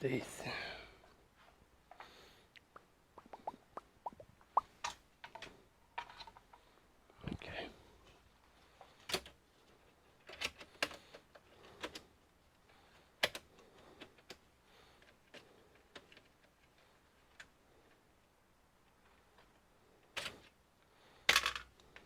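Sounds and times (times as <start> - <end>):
small parts clicking and tapping: 8.8 - 18.0, 21.2 - 22.0.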